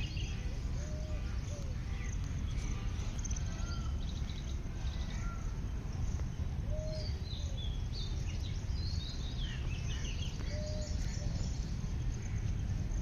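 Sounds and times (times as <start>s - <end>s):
birds whistling: 0.0s - 12.9s
steady low rumble: 0.0s - 13.0s.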